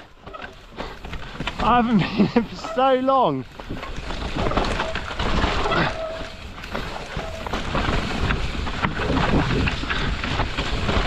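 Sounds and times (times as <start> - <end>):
bike knocking and rattling: 0.0 - 11.0
bike tyres running over rocks: 0.0 - 11.0
wind buffeting microphone: 7.2 - 11.0.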